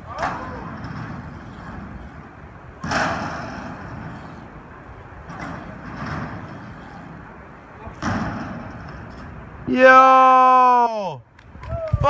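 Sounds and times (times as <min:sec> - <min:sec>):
bike landing thud: 0:00.0 - 0:09.6
bike tyres rolling: 0:00.0 - 0:10.2.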